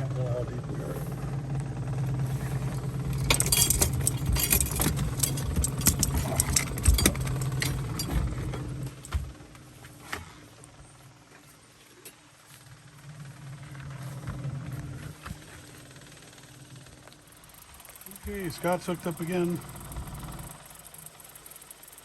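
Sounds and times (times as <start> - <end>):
boat motor humming: 0.0 - 22.0
gear clinking and rattling: 2.4 - 9.4.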